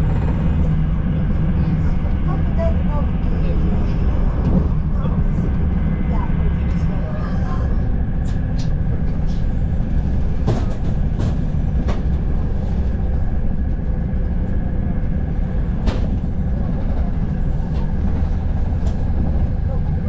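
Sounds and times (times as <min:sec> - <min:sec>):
train low rumble: 0:00.0 - 0:20.0.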